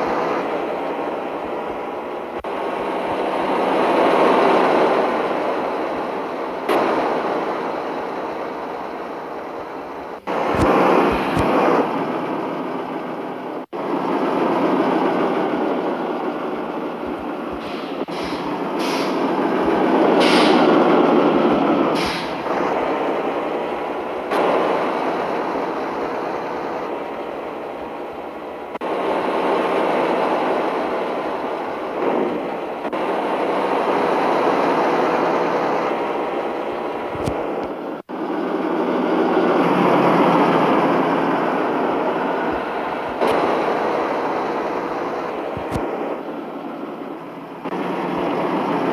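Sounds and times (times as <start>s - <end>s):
road noise: 0.0s - 48.9s
truck engine rumble: 0.0s - 48.9s.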